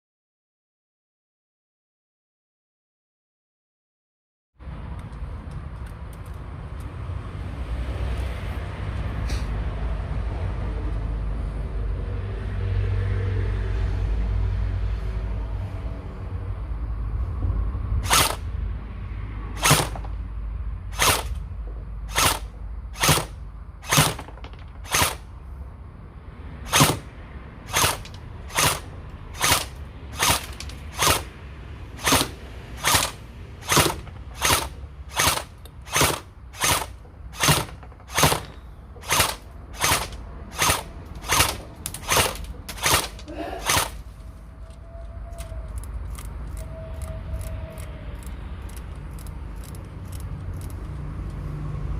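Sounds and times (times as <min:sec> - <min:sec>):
steady low rumble: 0:14.0 - 0:51.9
gel blaster shots cracking: 0:18.0 - 0:18.5, 0:19.6 - 0:20.2, 0:20.9 - 0:21.4, 0:22.1 - 0:25.2, 0:26.7 - 0:27.1, 0:27.7 - 0:31.3, 0:32.0 - 0:44.0.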